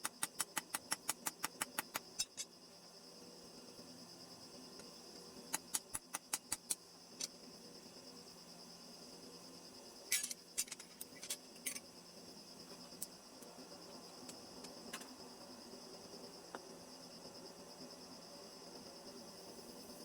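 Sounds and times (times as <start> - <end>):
small hard objects clicking: 0.0 - 2.5, 5.5 - 7.3.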